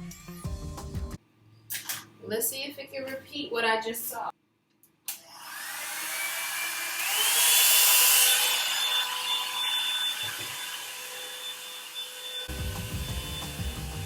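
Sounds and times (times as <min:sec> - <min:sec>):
hair dryer brush motor whine: 0:05.1 - 0:14.0.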